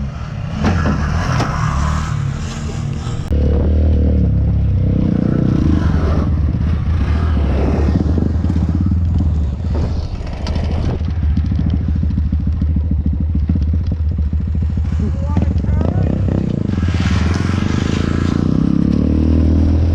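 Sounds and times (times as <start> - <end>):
motorcycle engine running: 3.2 - 19.9
clatter: 7.7 - 17.5.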